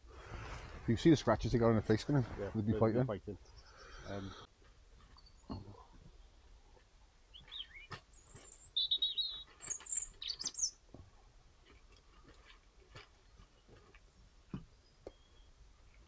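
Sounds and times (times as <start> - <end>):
small bird chirping: 5.1 - 6.4, 7.3 - 10.8, 14.7 - 16.0.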